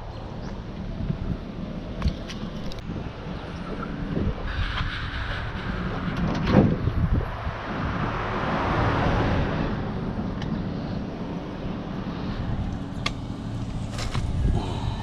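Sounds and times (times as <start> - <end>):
vehicle engine rumbling: 0.0 - 15.0
rushing noise: 4.0 - 10.2.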